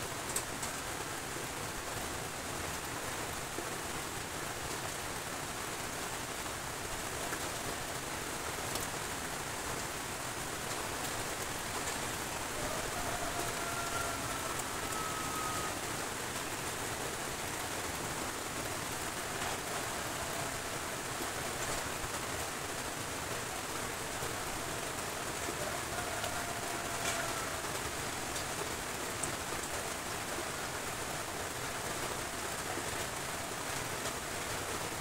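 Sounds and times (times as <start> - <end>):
rain on metal roofs: 0.0 - 35.0
flooded river rushing: 0.8 - 35.0
distant held tone: 13.6 - 15.8.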